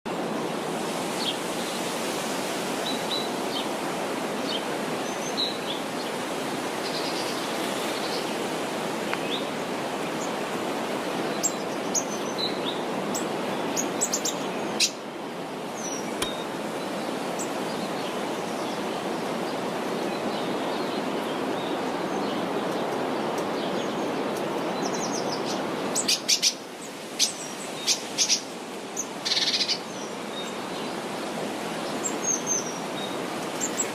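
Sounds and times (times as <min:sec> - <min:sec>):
birds chirping: 0:15.8 - 0:18.9.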